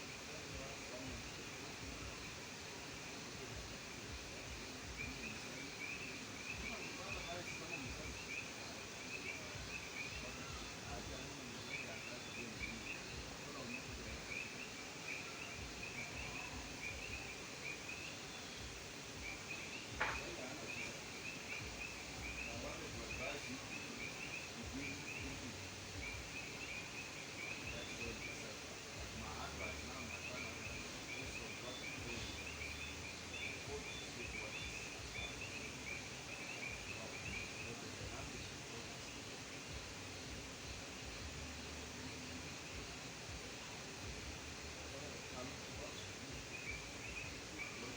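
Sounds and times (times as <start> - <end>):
frogs chirping: 0.0 - 47.9.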